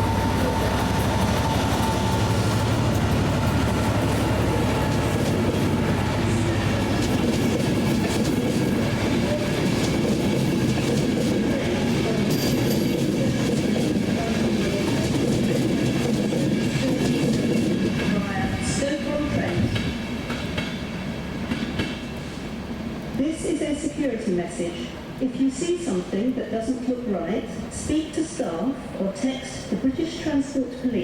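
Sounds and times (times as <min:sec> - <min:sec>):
train rumbling past: 0:00.0 - 0:31.0.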